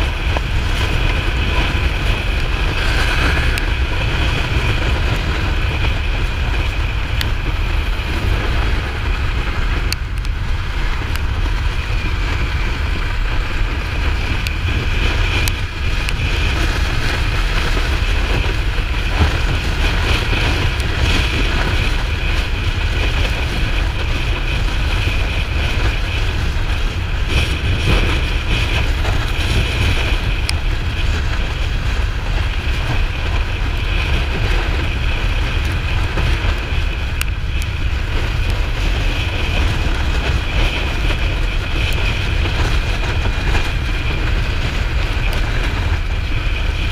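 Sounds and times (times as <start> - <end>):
motorcycle engine: 0.0 - 46.9
road noise: 0.0 - 46.9
wind rush over microphone: 0.0 - 46.9.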